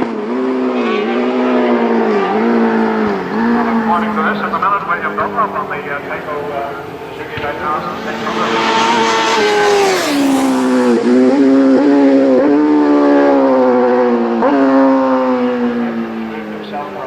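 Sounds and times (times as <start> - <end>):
motorcycle engine passing: 0.0 - 16.3.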